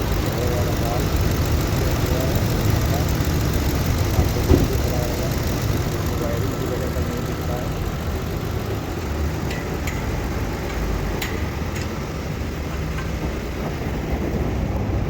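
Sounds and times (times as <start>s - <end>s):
air-conditioning compressor running: 0.0s - 15.0s
car engine idling: 0.0s - 15.0s.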